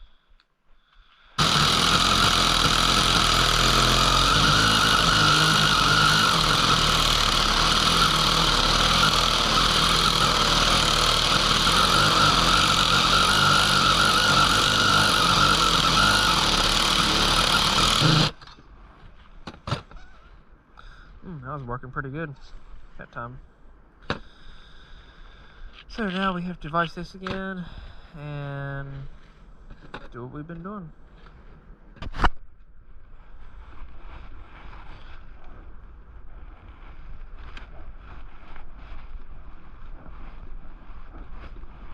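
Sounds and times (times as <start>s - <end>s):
power tool whining under load: 1.4s - 18.4s.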